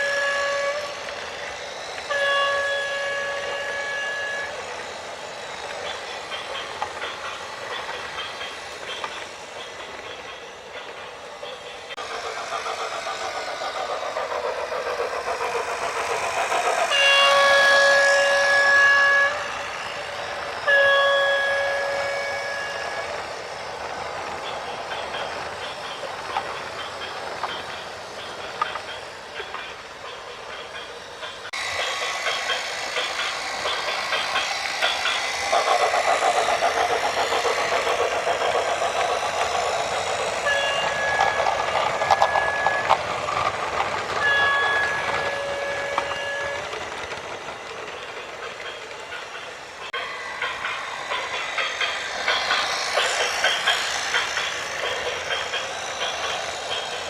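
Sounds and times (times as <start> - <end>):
vehicle horn blasts: 20.7 - 21.9.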